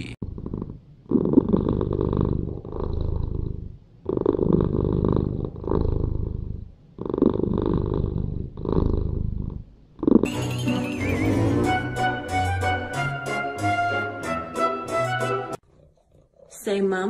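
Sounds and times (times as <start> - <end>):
cat purring: 0.0 - 10.3, 15.6 - 17.0.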